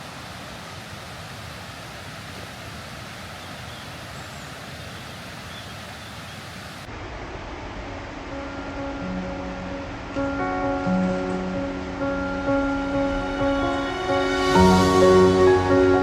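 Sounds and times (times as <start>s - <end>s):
outdoor rushing noise: 6.6s - 8.9s.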